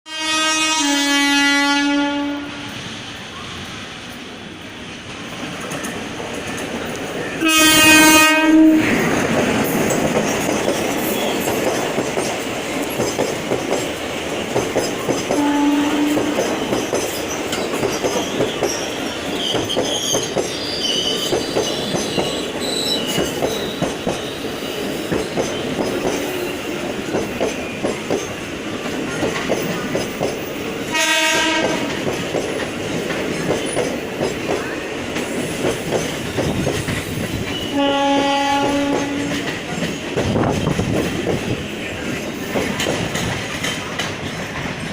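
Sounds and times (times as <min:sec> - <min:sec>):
locomotive horn blast: 0:00.1 - 0:02.8, 0:07.4 - 0:08.9, 0:15.4 - 0:16.5, 0:30.9 - 0:32.0, 0:37.6 - 0:39.4
train wheels clattering over rail joints: 0:05.1 - 0:44.9.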